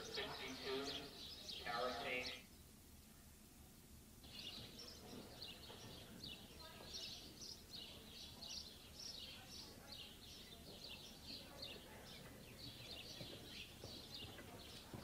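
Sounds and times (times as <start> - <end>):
small birds chirping: 0.0 - 2.7, 4.2 - 15.0
low steady hiss: 0.0 - 5.0.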